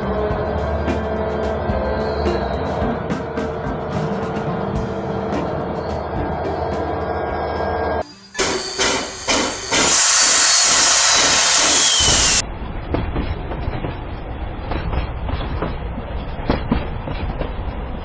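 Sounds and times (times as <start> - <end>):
train wheels clicking: 0.0 - 12.4
freight train rumbling: 0.0 - 18.0
loud steam hiss: 0.8 - 12.4
faint falling whistle: 8.0 - 12.4.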